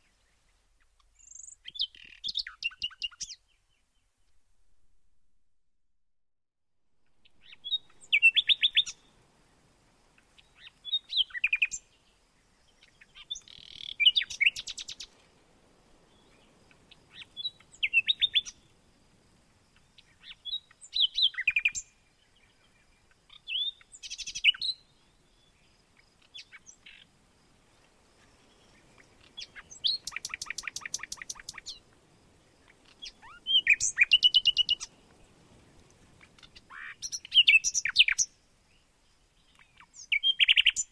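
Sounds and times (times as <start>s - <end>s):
songbird chirping: 0.0s - 5.2s, 7.0s - 40.9s
bird trill: 1.2s - 3.4s, 7.2s - 9.1s, 29.3s - 31.8s, 32.9s - 34.9s, 36.4s - 38.3s, 39.6s - 40.9s.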